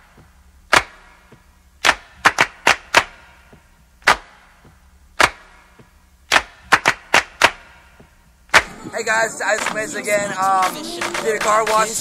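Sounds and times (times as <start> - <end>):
sharp knocks or claps: 0.0 - 8.7
faint steady hum: 0.0 - 12.0.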